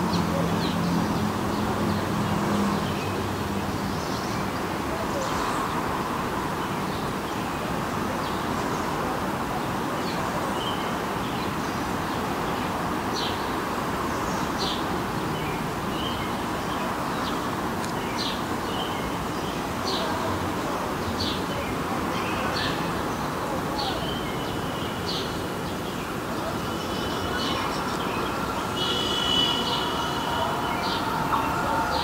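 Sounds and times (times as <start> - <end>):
open-air background hum: 0.0 - 32.0
small birds chirping: 21.0 - 32.0.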